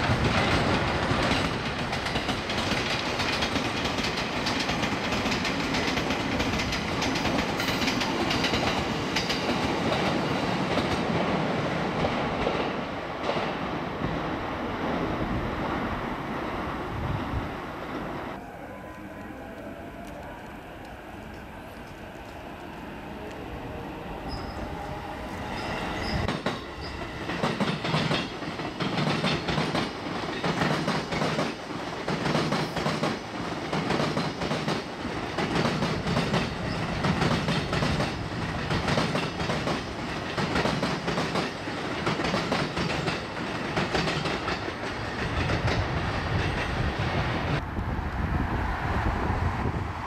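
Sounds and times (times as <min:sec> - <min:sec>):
train wheels clacking over rail joints: 0:00.0 - 0:11.2, 0:26.0 - 0:46.9
electric train passing: 0:00.0 - 0:50.0.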